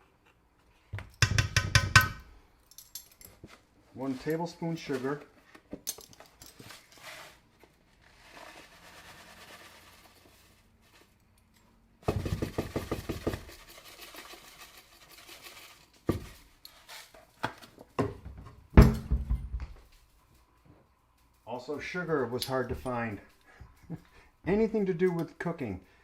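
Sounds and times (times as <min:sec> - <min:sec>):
sugar pouring rustle: 0:08.0 - 0:11.2, 0:13.2 - 0:17.1.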